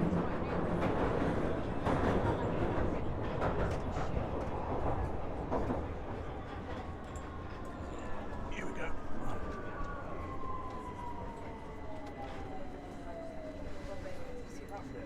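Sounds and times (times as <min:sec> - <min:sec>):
train rumbling through tunnel: 0:00.0 - 0:15.0.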